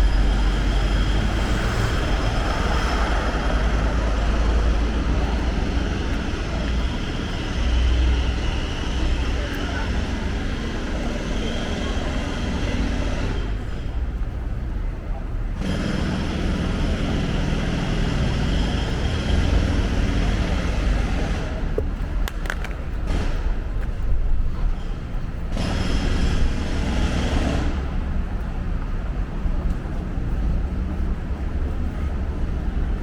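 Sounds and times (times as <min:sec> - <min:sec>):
low rumble of traffic: 0:00.0 - 0:33.0
voices of passersby: 0:00.0 - 0:33.0
sharp clicks: 0:22.2 - 0:22.9.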